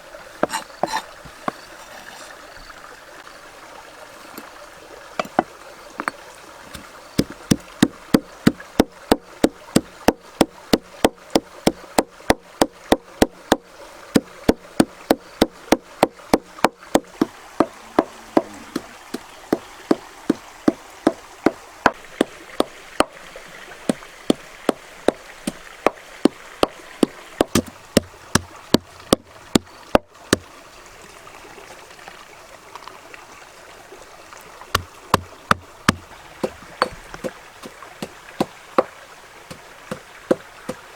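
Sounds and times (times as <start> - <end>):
stream running: 0.0 - 40.9
knife chopping on wooden board: 0.4 - 1.1, 27.4 - 29.7, 34.8 - 37.4.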